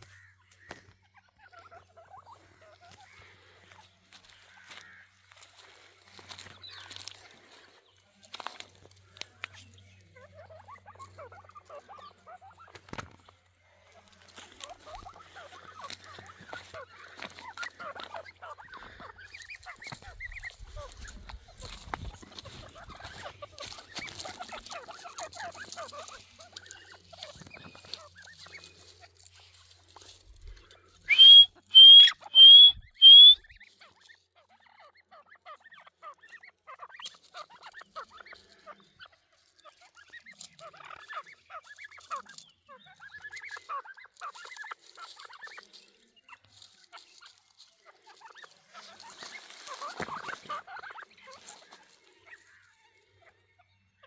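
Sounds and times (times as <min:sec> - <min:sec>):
quieter bird calls: 0:00.0 - 0:54.0
partridge whistled calls: 0:31.0 - 0:33.7.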